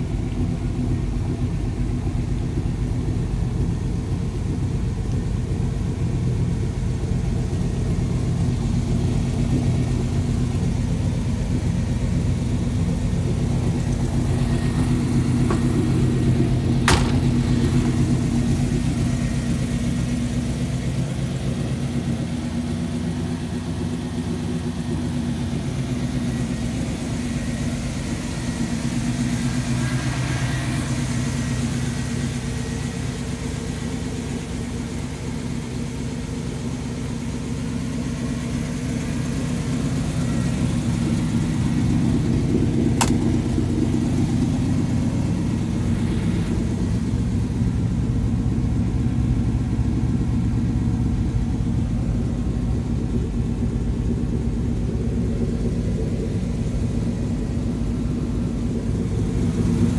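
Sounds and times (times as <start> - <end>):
car engine idling: 0.0 - 59.9
sharp click: 43.0 - 43.4.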